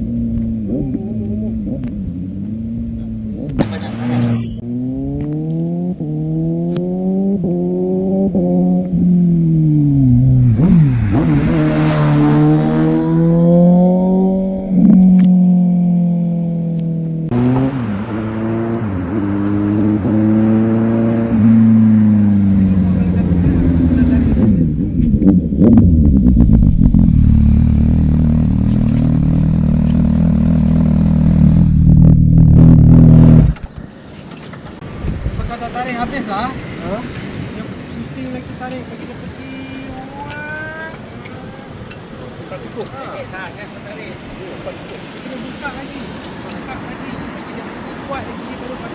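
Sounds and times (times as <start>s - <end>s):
motorcycle engines accelerating: 0.0s - 33.6s, 34.5s - 48.9s
sharp exhaust pops: 25.0s - 35.5s
wind noise: 31.6s - 38.6s.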